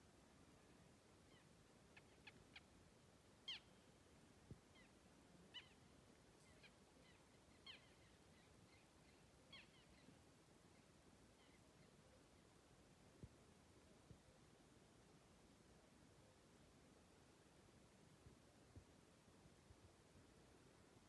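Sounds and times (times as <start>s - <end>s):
faint high bird chirps: 3.4s - 4.0s, 4.7s - 12.5s.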